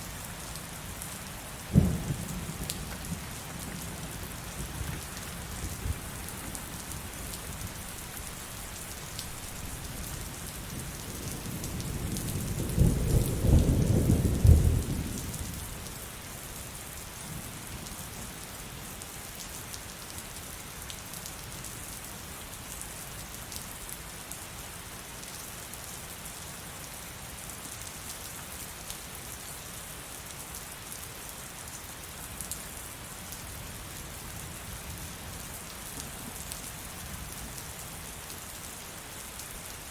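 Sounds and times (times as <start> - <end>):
heavy rain falling: 0.0 - 39.9
thunder rumbling: 1.7 - 4.8.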